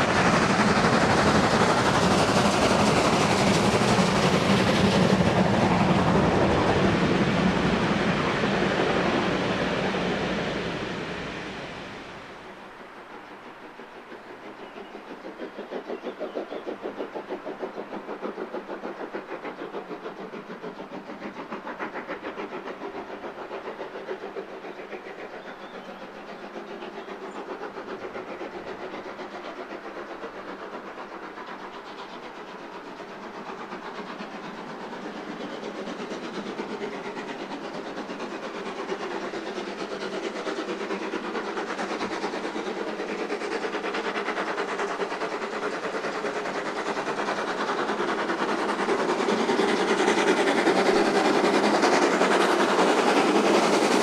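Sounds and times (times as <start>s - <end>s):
train clattering on rails: 0.0s - 54.0s.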